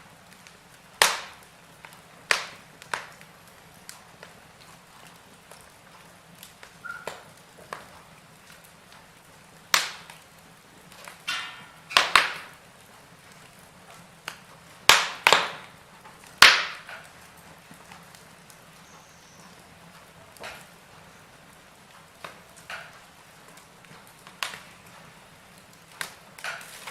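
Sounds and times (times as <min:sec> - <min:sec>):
burning logs crackling: 0:00.0 - 0:26.9
soft fire hiss: 0:00.0 - 0:26.9
brief whistling hiss: 0:06.8 - 0:07.1.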